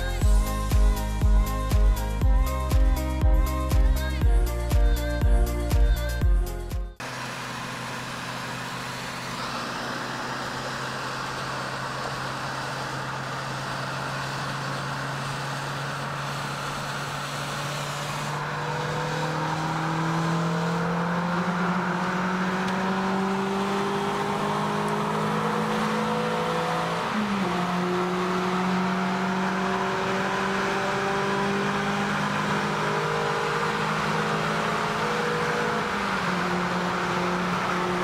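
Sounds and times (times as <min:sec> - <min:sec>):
tyres hissing on wet road: 0:07.0 - 0:19.7
car engine from inside cabin: 0:07.0 - 0:38.0.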